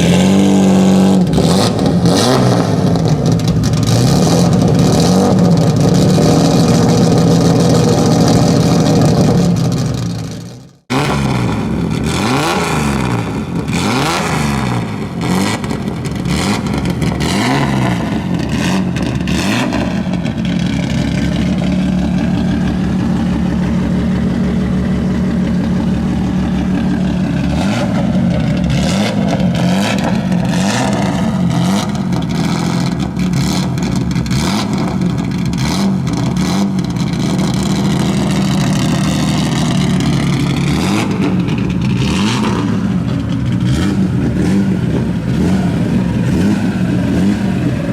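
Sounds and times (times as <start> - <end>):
rally car engine revving: 0.0 - 47.9.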